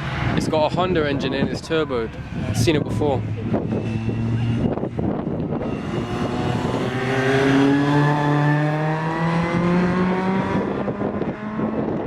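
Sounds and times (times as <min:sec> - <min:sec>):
car engine accelerating past: 0:03.0 - 0:12.0.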